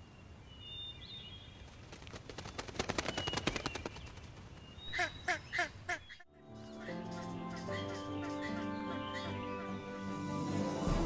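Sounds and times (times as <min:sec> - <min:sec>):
fast run of clicks: 0:01.7 - 0:04.6.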